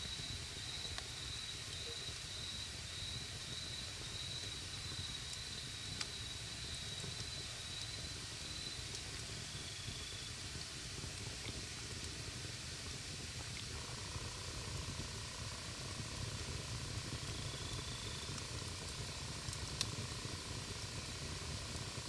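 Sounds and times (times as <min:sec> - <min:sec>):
low rumble of flames: 0:00.0 - 0:22.0
wood crackles: 0:13.6 - 0:22.0.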